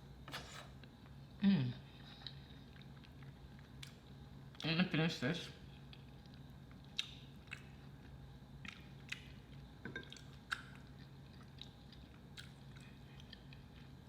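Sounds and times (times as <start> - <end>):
low steady hum: 0.0 - 14.0
close-up chewing: 2.1 - 4.7, 5.8 - 14.0.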